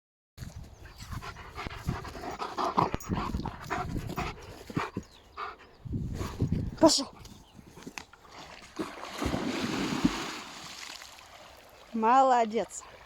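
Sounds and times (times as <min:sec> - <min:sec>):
dog panting: 0:00.8 - 0:07.4.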